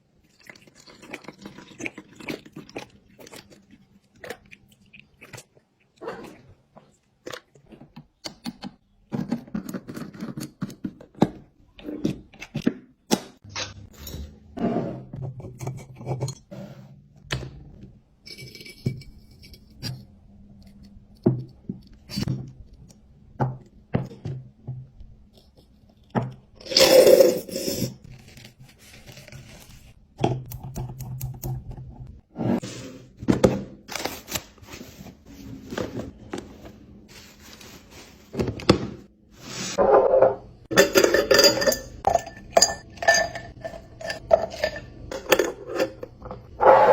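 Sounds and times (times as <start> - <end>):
kitchen objects clicking and scraping: 7.6 - 22.3, 37.2 - 46.9.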